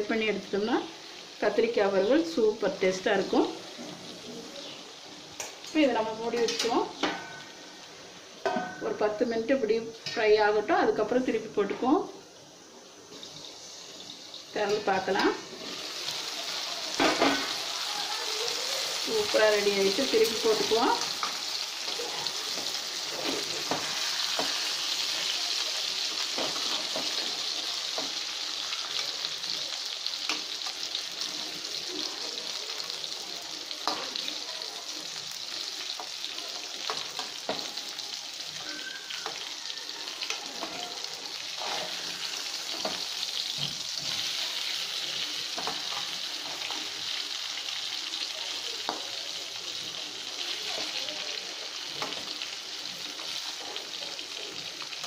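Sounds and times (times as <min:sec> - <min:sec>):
vegetables sizzling in oil: 0:00.0 - 0:55.0
metal spatula scraping pan: 0:41.4 - 0:43.0.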